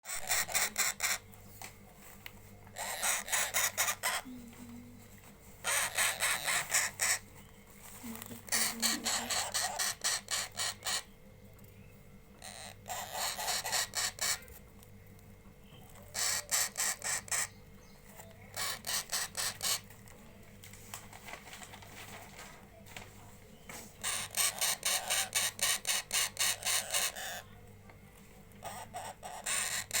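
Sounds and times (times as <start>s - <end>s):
faint steady hum: 0.0s - 30.0s
parrot squawking: 0.1s - 1.3s, 2.7s - 4.3s, 5.6s - 7.3s, 8.4s - 11.1s, 12.4s - 14.6s, 15.9s - 17.6s, 18.5s - 19.9s, 24.0s - 27.5s, 28.6s - 30.0s.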